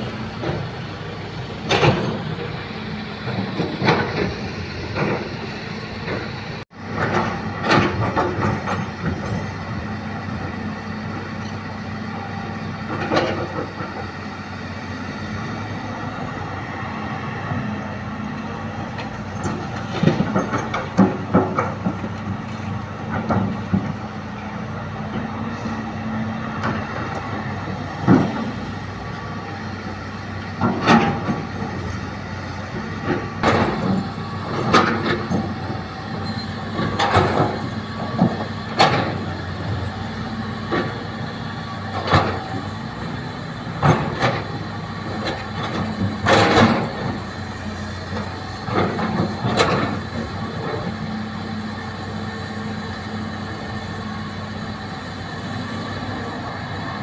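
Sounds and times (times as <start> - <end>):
excavator diesel engine running: 0.0 - 57.0
sharp knocks and clanks: 19.4 - 22.2, 32.8 - 35.8.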